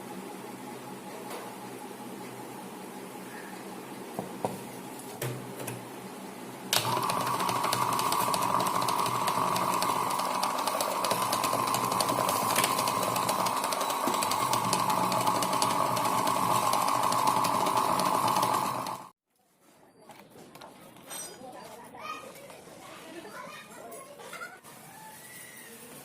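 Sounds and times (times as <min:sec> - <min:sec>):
water pump motor humming: 0:06.8 - 0:19.1.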